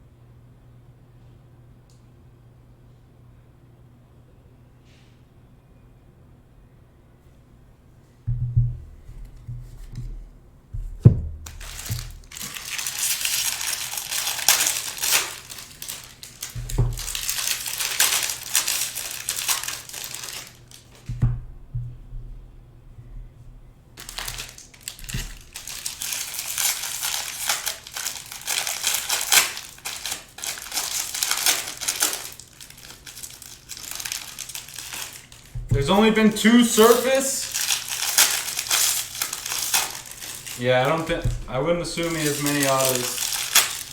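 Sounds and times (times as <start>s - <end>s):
dull thumps on table: 8.3s - 10.2s
foil wrappers crinkling: 11.4s - 21.2s, 24.0s - 43.9s.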